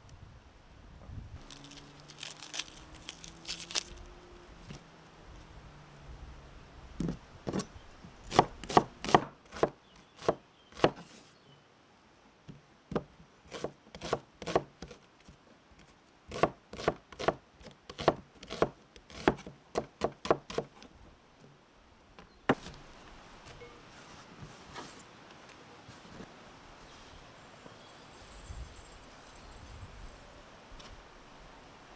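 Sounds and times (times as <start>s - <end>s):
knife chopping on cutting board: 8.3s - 11.0s, 16.3s - 20.7s.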